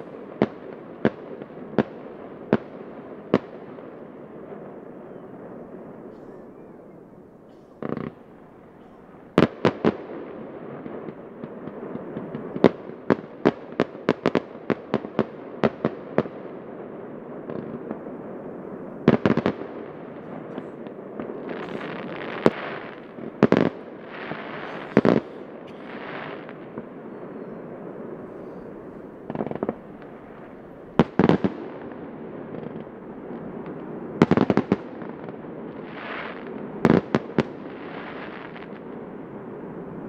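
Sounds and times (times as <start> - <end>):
fireworks crackling: 0.0 - 40.0
firework shells bursting with bangs: 19.0 - 38.8.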